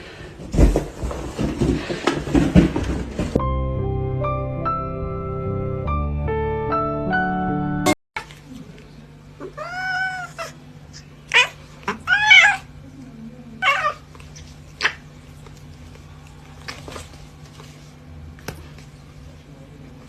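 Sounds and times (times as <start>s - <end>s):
cat meowing: 9.4s - 10.6s, 11.3s - 12.7s, 13.6s - 15.0s.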